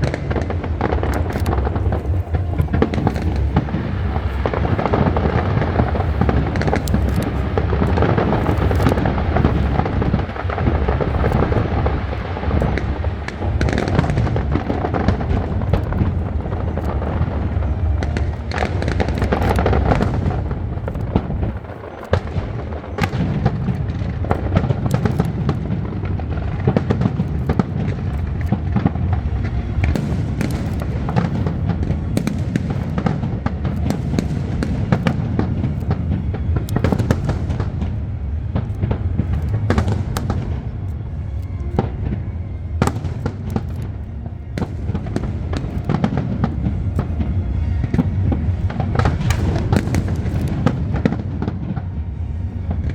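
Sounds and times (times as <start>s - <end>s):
fireworks bursting: 0.0s - 52.9s
fireworks crackling: 0.0s - 52.9s.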